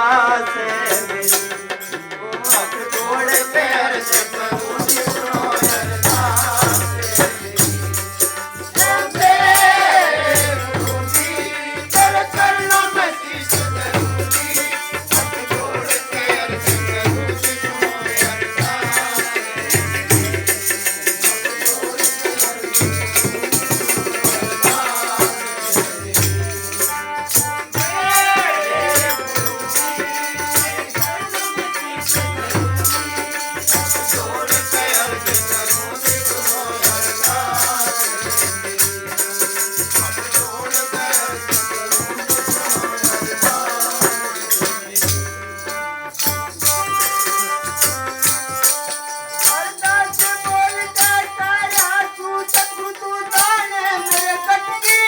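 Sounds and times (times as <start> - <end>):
jingling rattle percussion: 0.6 - 55.0
hand drum beat: 4.4 - 45.2.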